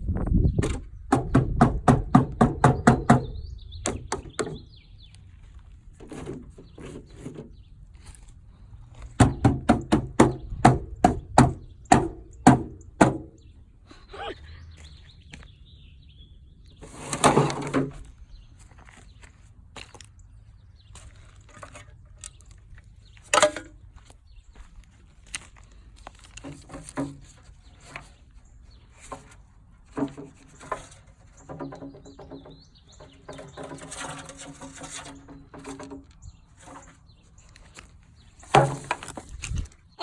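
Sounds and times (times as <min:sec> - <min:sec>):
rapid hard knocks: 0:00.7 - 0:04.6, 0:09.2 - 0:13.3
short scraping: 0:16.8 - 0:19.2.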